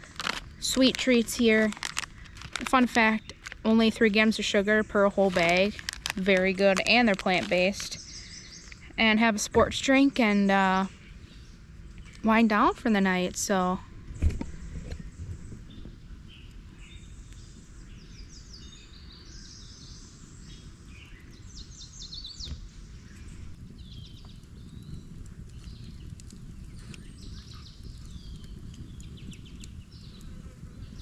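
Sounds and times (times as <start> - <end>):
steady low rumble: 0.0 - 31.0
wildlife chirping and trilling: 3.1 - 9.0.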